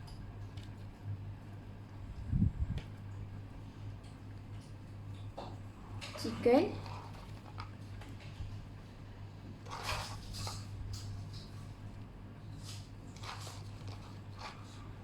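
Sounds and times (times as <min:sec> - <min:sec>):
low electrical hum: 0:00.0 - 0:15.0
food rustling and scraping: 0:06.0 - 0:15.0.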